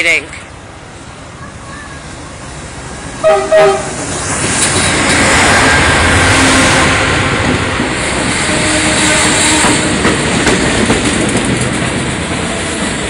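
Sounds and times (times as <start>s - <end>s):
train wheels rumbling on rails: 1.3s - 13.0s
train horn blasts: 3.2s - 4.1s, 8.4s - 10.0s.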